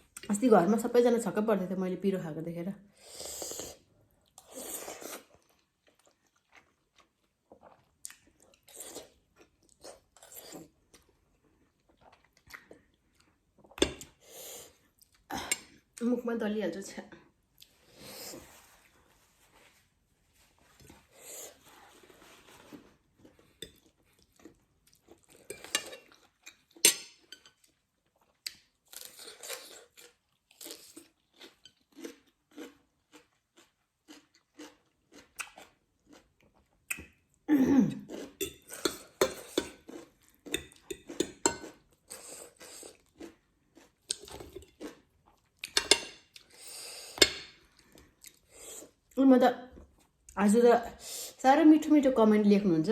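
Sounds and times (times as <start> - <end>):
person chewing food: 3.2 - 15.9, 20.5 - 49.2
cutlery clinking on a dish: 25.5 - 26.1, 26.8 - 27.6, 38.4 - 39.8, 40.6 - 41.8, 45.7 - 46.3.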